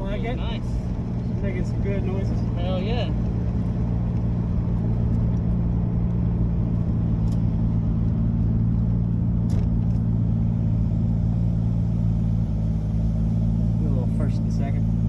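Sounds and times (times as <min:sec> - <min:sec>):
car engine low drone: 0:00.0 - 0:15.0.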